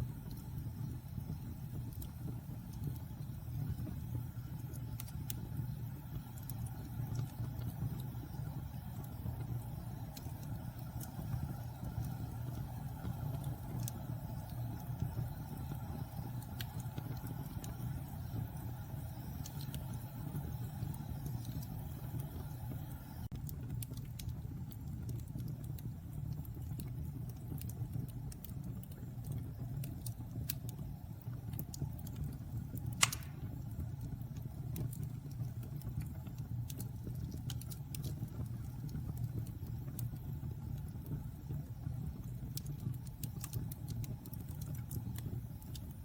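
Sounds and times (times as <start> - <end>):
fire crackling: 0.0 - 46.0
fire rumbling in fireplace: 0.0 - 46.0
sharp pop of fire: 32.9 - 33.7.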